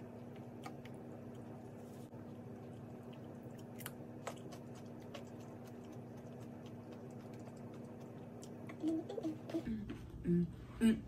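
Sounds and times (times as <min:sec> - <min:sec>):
crunchy cucumber chewing: 0:02.2 - 0:08.7.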